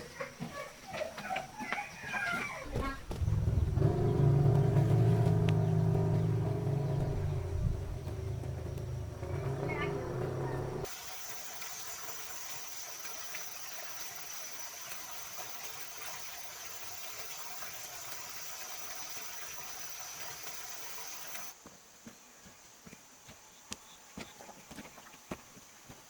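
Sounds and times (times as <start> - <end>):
running water rushing: 3.1 - 21.6
faint ticks: 5.3 - 5.6.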